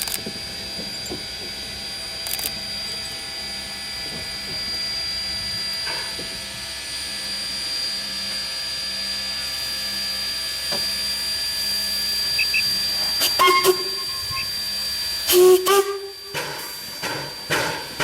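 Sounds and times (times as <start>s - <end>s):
steam locomotive hiss and rumble: 0.0s - 7.3s, 9.4s - 18.0s
thin high whine: 11.6s - 17.1s.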